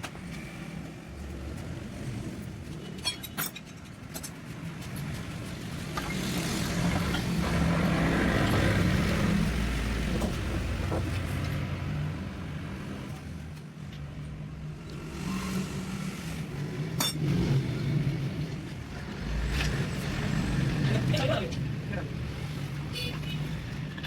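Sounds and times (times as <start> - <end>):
engine revving: 6.0 - 12.0, 14.7 - 22.9.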